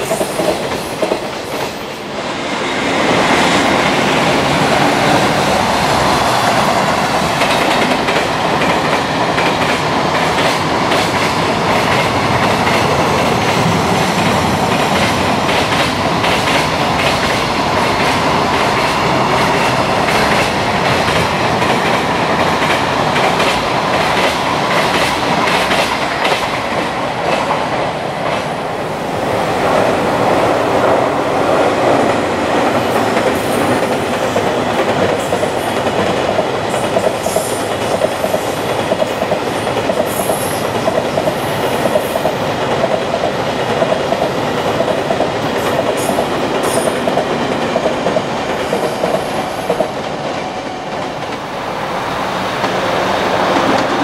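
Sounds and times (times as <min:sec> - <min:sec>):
freight train wheels clattering: 0:02.9 - 0:28.5.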